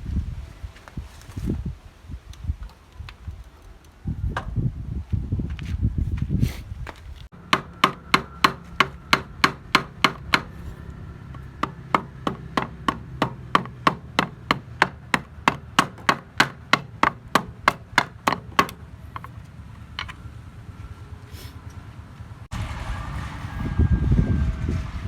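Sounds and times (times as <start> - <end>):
hammer tapping metal: 7.3 - 19.3.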